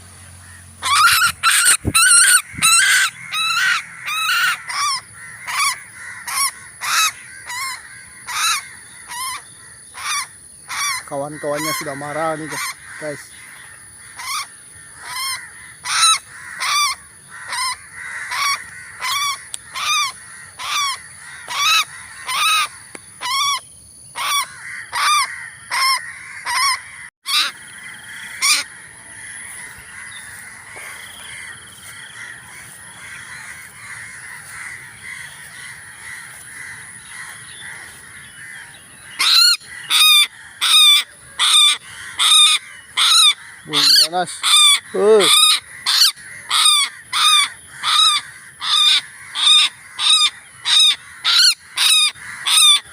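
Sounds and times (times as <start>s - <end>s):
bird alarm calls: 0.0s - 52.9s.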